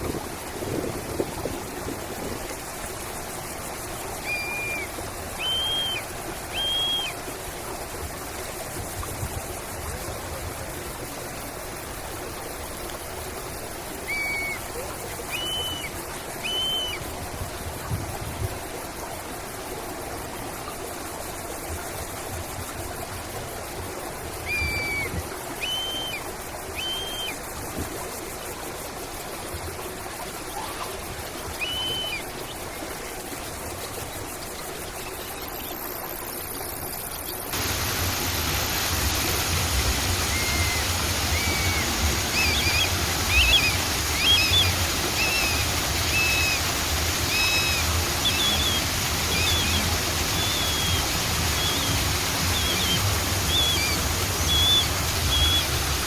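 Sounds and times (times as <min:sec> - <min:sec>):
stream rushing: 0:00.0 - 0:56.0
bird chirps: 0:40.3 - 0:46.6, 0:47.3 - 0:49.8.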